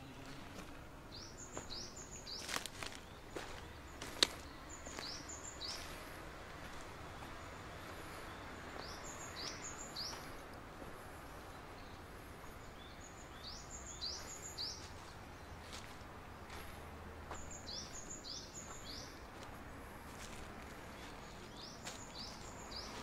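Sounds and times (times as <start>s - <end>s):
songbird calling: 0.0s - 6.1s, 6.7s - 10.5s, 11.4s - 15.9s, 20.9s - 23.0s
low outdoor background noise: 0.0s - 23.0s.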